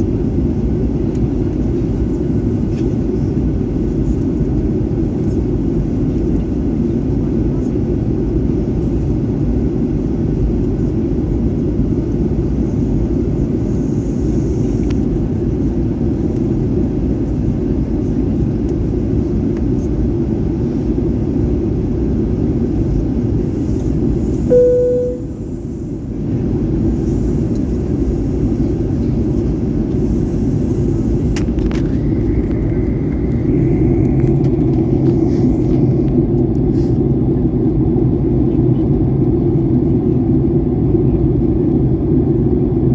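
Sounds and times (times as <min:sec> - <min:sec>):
airliner cabin engine rush: 0:00.0 - 0:42.9
short tone: 0:24.5 - 0:25.6
steady hum: 0:24.5 - 0:25.7.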